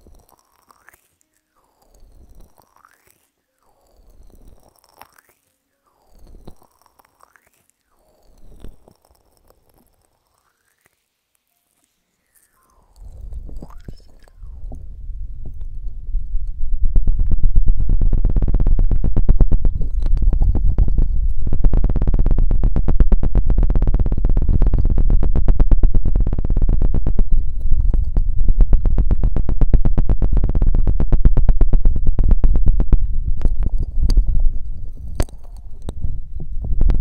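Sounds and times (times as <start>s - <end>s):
low rumble from mic contact: 13.0s - 37.0s.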